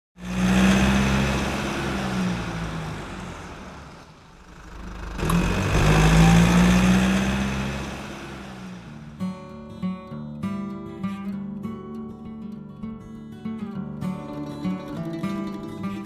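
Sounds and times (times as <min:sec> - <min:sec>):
car engine humming: 0:00.2 - 0:09.2.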